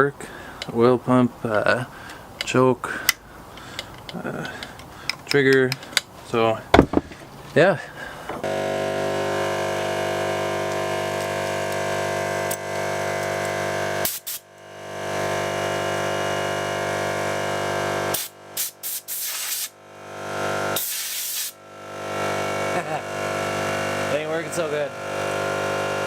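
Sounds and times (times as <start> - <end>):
air compressor motor hum: 6.8 - 7.4, 8.1 - 26.0
loud hiss of compressed air: 13.9 - 14.5, 18.1 - 19.8, 20.7 - 21.6.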